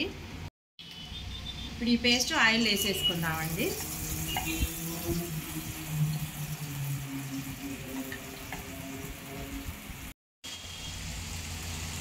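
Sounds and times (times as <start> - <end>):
paste sizzling in hot oil: 2.6 - 12.0.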